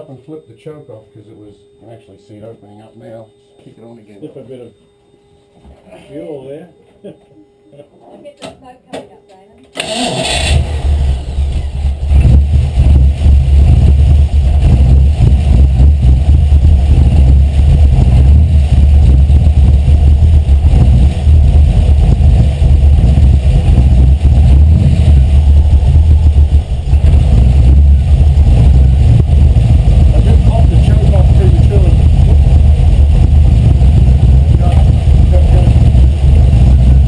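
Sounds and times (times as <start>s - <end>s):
car engine running loudly: 9.9s - 37.0s.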